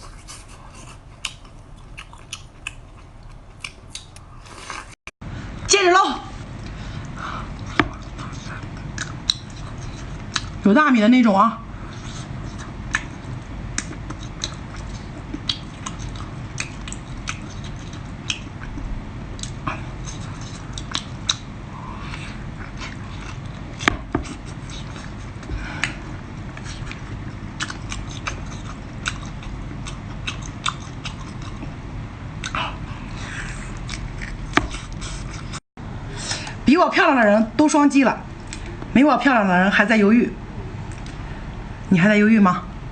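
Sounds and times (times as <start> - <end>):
person chewing and biting food: 0.3 - 5.0, 7.0 - 10.6, 11.9 - 31.8, 32.4 - 35.6
steady low background noise: 5.3 - 42.9.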